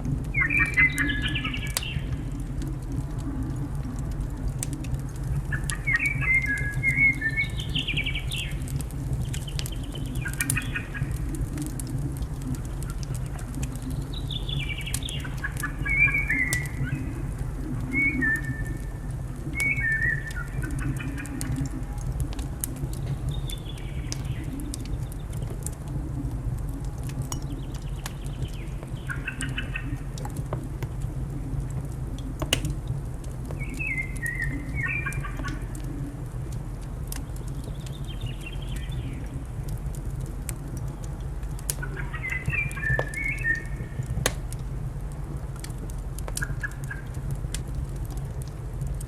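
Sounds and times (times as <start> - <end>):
fire crackling and popping: 0.0 - 49.0
small birds chirping: 13.8 - 17.2, 41.0 - 44.4.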